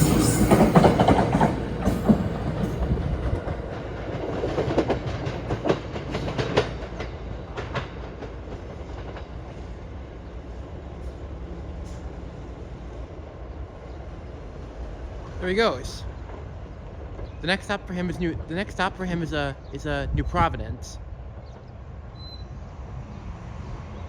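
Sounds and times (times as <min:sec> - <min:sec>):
train wheels clicking on rail joints: 0:00.0 - 0:13.3
low train rumble: 0:00.0 - 0:24.0.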